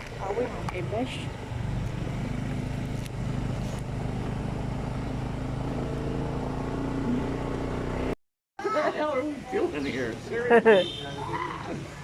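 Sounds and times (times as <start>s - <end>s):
motor vehicle engine running: 0.0s - 8.2s.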